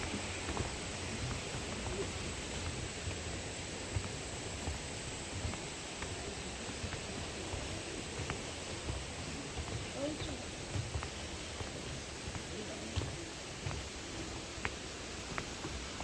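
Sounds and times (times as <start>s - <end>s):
stream water rushing: 0.0s - 7.0s.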